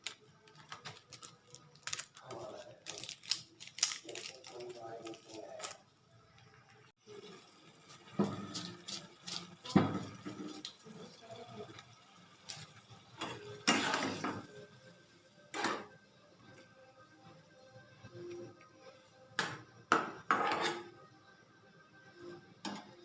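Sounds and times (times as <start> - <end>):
dishes knocking and clinking: 19.4 - 20.8.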